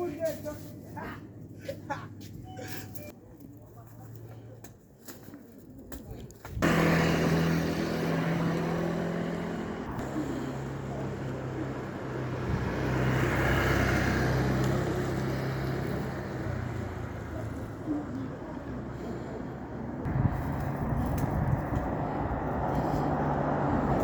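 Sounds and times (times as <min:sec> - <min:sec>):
motor vehicle engine: 0:06.6 - 0:24.0
traffic passing: 0:06.6 - 0:24.0.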